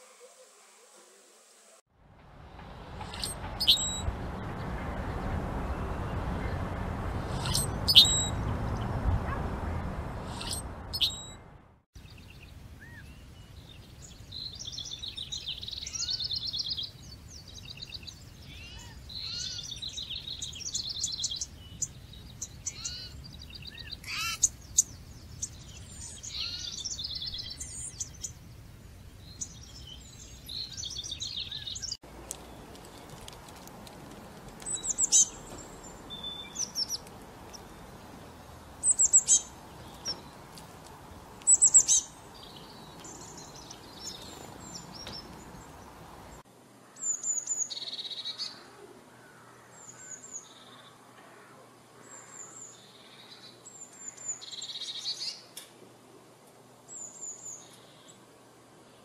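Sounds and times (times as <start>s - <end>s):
steady background hiss: 0.0s - 7.3s, 12.0s - 59.0s
songbirds singing: 2.6s - 55.7s, 56.6s - 59.0s
sharp high-pitched bird calls: 3.0s - 4.1s, 7.3s - 8.4s, 10.2s - 11.4s, 22.5s - 28.3s.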